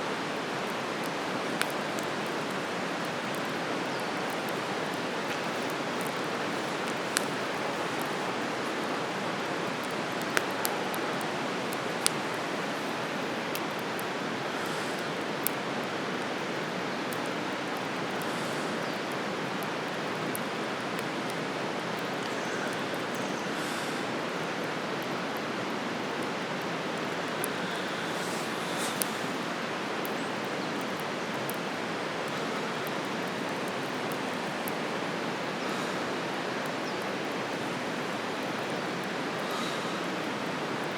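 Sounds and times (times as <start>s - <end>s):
campfire crackling pops: 0.2s - 23.2s
fire rushing hiss: 27.4s - 29.7s.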